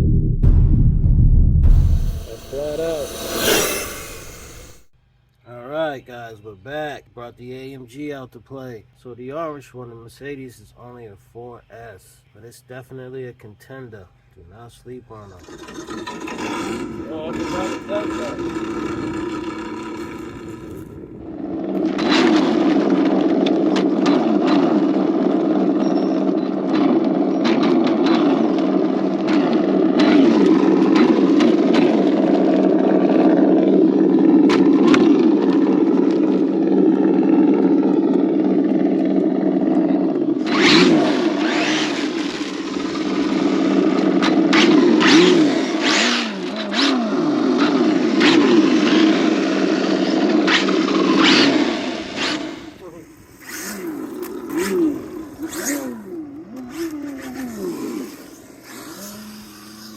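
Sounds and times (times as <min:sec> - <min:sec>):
rc car motor whine: 0:01.7 - 0:04.9, 0:15.2 - 0:59.9
gritty scrapes and tyre noise: 0:15.3 - 0:24.4, 0:40.4 - 0:59.9.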